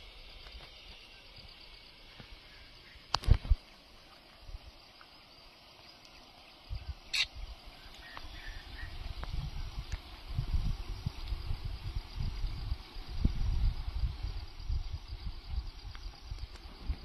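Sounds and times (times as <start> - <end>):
faint steady hiss: 0.0 - 17.0
wind buffeting microphone: 6.5 - 17.0.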